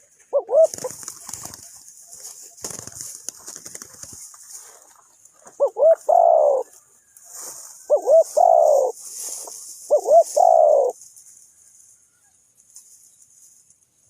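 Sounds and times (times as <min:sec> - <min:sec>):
dove cooing: 0:00.3 - 0:01.7, 0:05.5 - 0:06.7, 0:07.8 - 0:09.0, 0:09.8 - 0:11.0.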